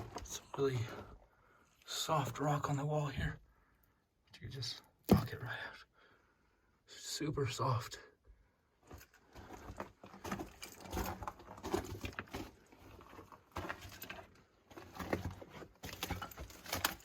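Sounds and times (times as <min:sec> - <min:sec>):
footsteps crunching on rubble: 0:08.8 - 0:17.0.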